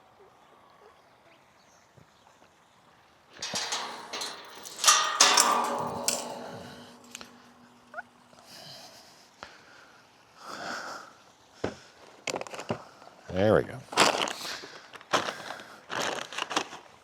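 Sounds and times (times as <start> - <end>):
gear clattering: 3.4 - 8.2
loud ringing clang: 3.4 - 8.3.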